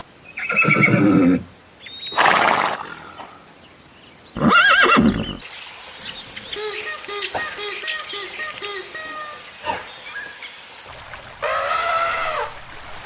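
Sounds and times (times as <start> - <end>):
horse whinnying: 0.4 - 1.5, 4.4 - 5.4.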